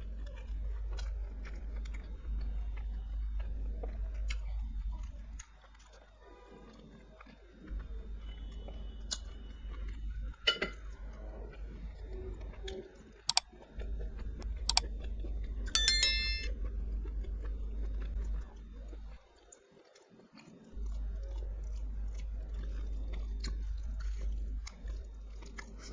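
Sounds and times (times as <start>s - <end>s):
bright ringing clink: 15.8s - 16.5s
sharp clicks: 15.8s - 16.5s.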